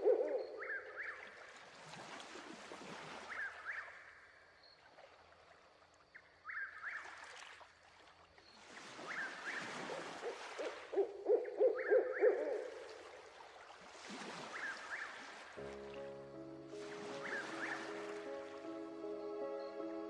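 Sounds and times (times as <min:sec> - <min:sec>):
deep bird hoots: 0:00.0 - 0:01.2, 0:10.3 - 0:12.8
bird gliding call: 0:00.0 - 0:01.4, 0:08.9 - 0:12.9, 0:14.3 - 0:15.6, 0:16.8 - 0:20.0.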